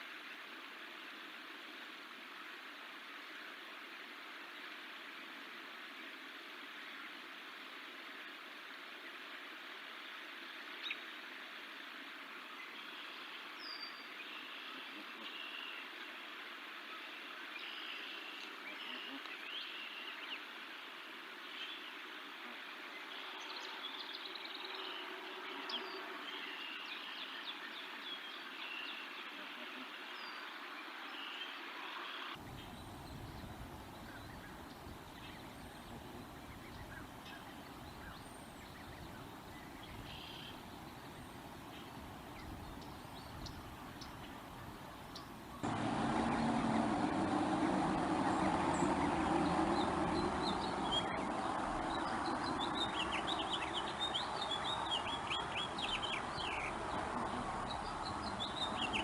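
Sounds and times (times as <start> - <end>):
steady noisy rumble: 45.6 - 54.0.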